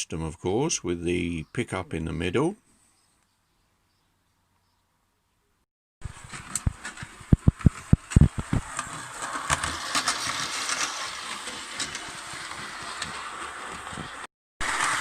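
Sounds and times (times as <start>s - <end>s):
toy train rattling on rails: 6.1s - 15.0s.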